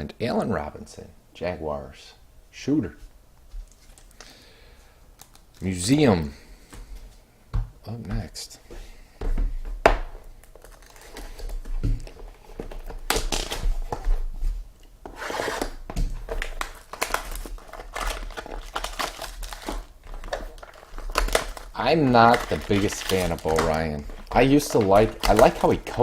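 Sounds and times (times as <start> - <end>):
plastic and foil wrapping crinkling: 3.6 - 4.3, 10.2 - 14.4, 16.1 - 26.0.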